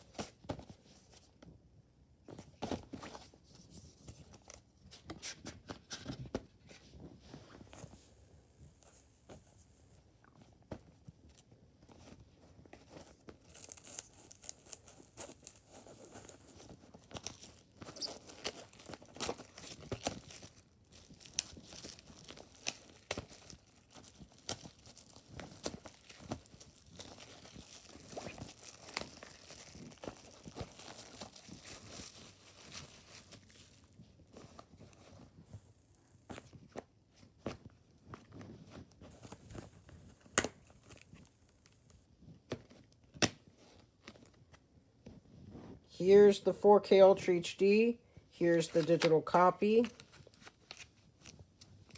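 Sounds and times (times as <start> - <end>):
plastic wrap crinkling: 12.9 - 36.8, 38.3 - 42.0.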